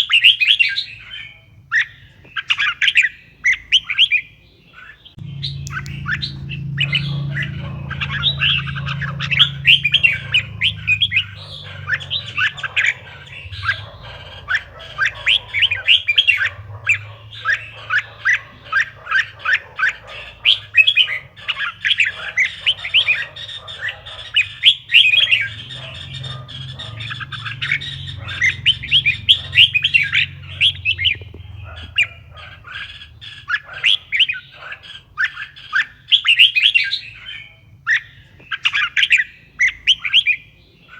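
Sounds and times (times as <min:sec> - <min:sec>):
bird singing chirping runs: 0:01.8 - 0:34.6
faint low hum: 0:05.2 - 0:33.8.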